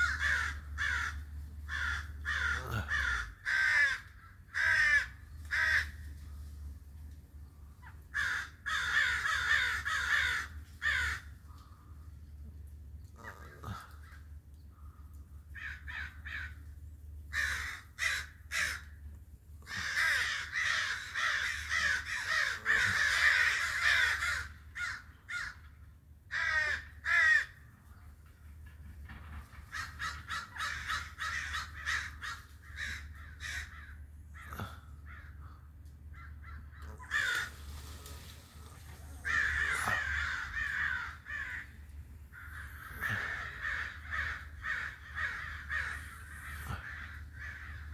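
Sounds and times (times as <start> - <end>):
crows cawing: 0.0 - 6.6, 7.6 - 28.0, 29.1 - 47.9.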